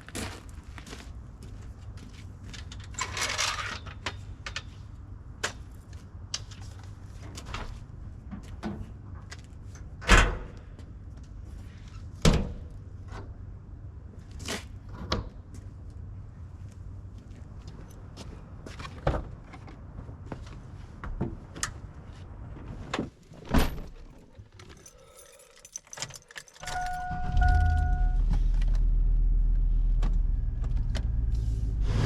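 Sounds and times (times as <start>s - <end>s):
low steady rumble: 22.0s - 32.0s.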